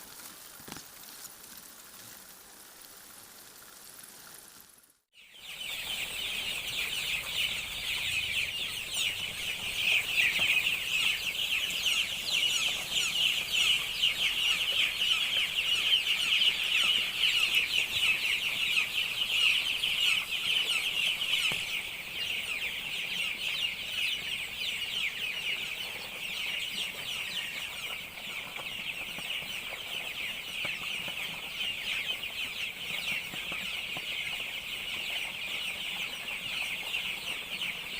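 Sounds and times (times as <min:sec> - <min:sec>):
chickens calling: 0:05.2 - 0:37.9.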